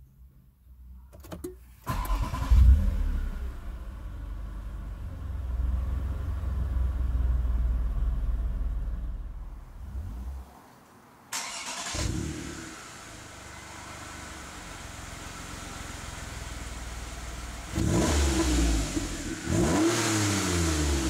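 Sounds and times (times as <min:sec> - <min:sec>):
car engine starting and idling: 0:01.1 - 0:10.4, 0:11.3 - 0:21.0.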